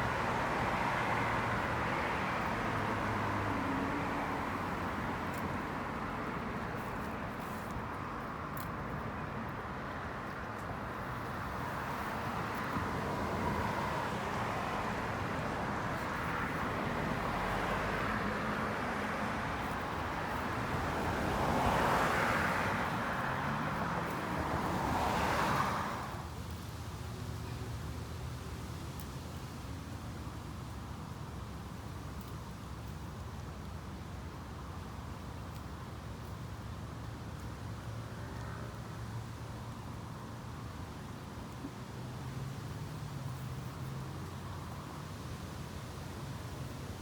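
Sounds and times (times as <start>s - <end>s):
cars passing: 0.0s - 26.4s
road traffic: 0.0s - 47.0s.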